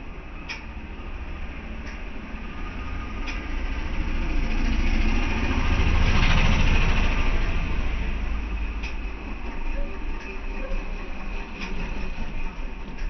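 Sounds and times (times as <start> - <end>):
motor vehicle engine passing: 1.3 - 9.3
faint clicks: 3.2 - 3.5, 8.8 - 9.0.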